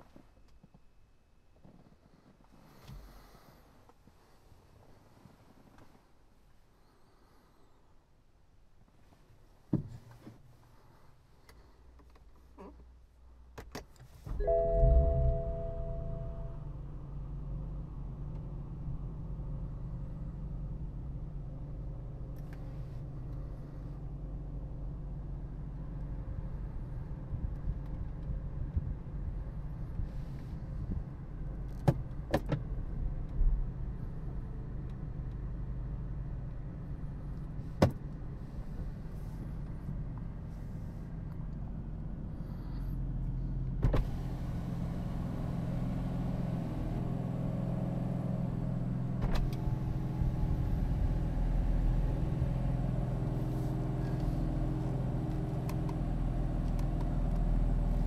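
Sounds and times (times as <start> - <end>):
car engine idling: 14.3 - 27.4.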